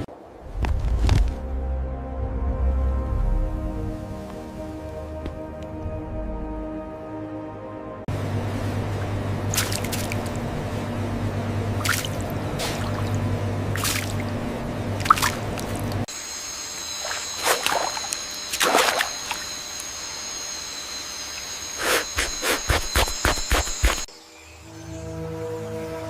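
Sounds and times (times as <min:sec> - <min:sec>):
low steady hum: 0:00.0 - 0:22.4
high steady whine: 0:08.1 - 0:26.0
water dripping and splashing: 0:09.5 - 0:10.4, 0:11.8 - 0:16.1, 0:17.0 - 0:19.5.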